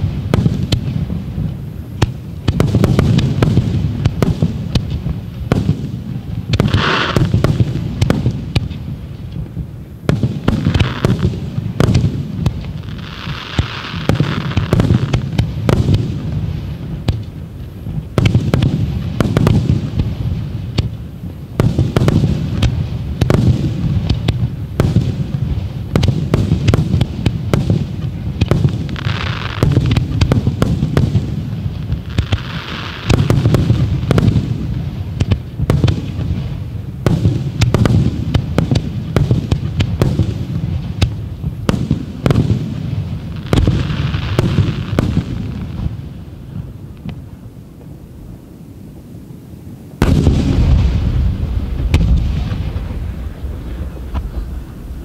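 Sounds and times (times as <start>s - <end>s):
firework bangs: 0.0s - 47.4s, 50.0s - 55.0s
continuous rumble: 49.8s - 55.0s.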